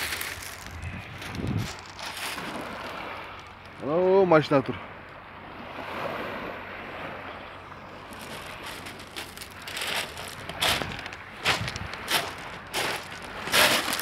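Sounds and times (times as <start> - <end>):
wind on microphone: 0.0 - 3.1, 8.1 - 14.0
sea surf washing ashore: 0.0 - 14.0.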